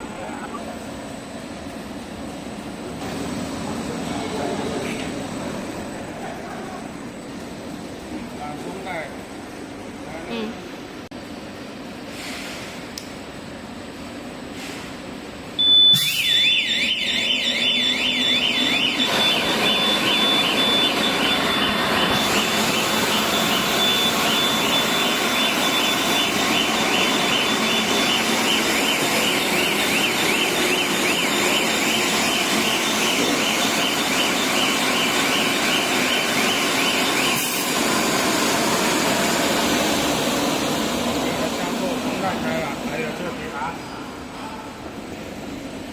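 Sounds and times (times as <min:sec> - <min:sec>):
machinery hum: 0:00.0 - 0:45.9
high alarm beep: 0:15.6 - 0:38.9
warbling alarm siren wail: 0:15.6 - 0:40.5.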